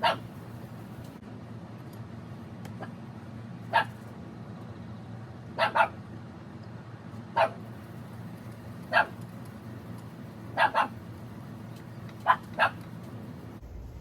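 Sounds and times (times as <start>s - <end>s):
dog barking: 0.0s - 0.3s, 3.7s - 4.0s, 5.6s - 6.0s, 7.4s - 7.6s, 8.9s - 9.2s, 10.6s - 11.0s, 12.2s - 12.8s.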